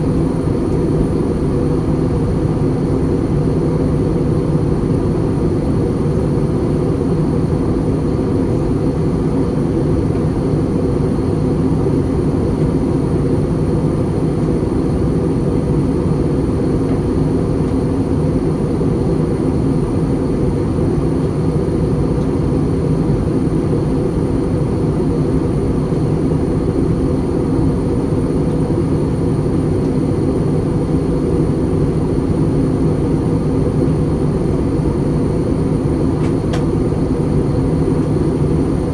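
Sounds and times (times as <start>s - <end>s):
airplane cabin drone: 0.0s - 38.9s.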